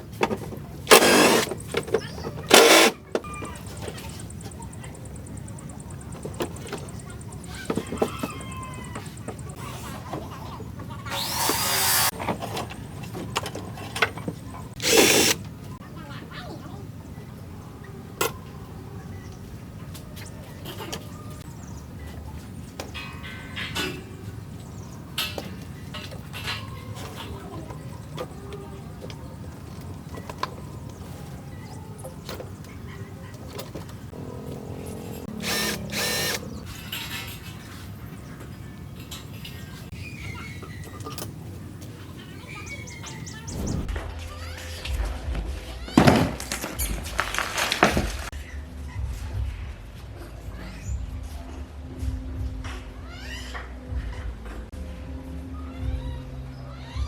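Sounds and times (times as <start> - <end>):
workshop rumble: 0.0 - 16.8, 18.1 - 46.3
power drill whirring: 0.9 - 1.6, 2.5 - 3.0, 11.1 - 12.1, 14.8 - 15.4, 35.4 - 36.4.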